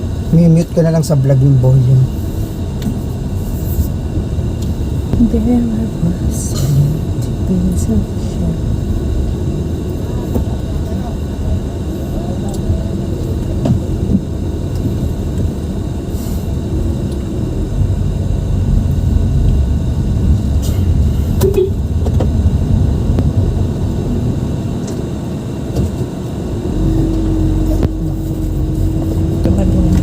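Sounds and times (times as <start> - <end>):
car road and engine rumble: 0.0 - 30.0
steady hum: 0.0 - 30.0
brief tone: 21.4 - 21.9.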